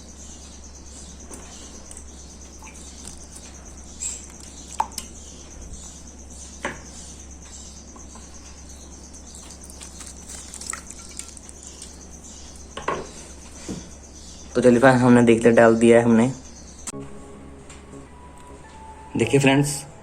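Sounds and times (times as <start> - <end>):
steady low hum: 0.0 - 20.0
water drips and splashes: 1.8 - 5.4, 9.1 - 12.9.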